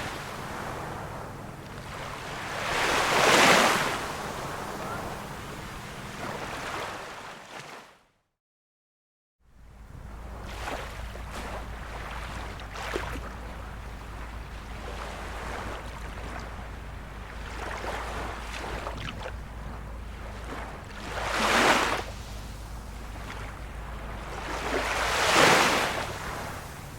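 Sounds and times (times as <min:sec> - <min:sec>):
small waves lapping on shore: 0:00.0 - 0:08.0, 0:09.6 - 0:26.9
low rumble: 0:09.5 - 0:26.9.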